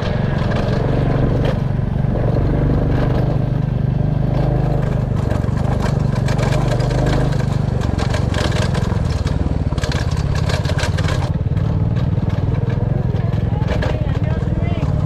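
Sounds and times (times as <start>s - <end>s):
motorcycle engine running: 0.0s - 15.0s
clattering and knocks: 4.3s - 15.0s.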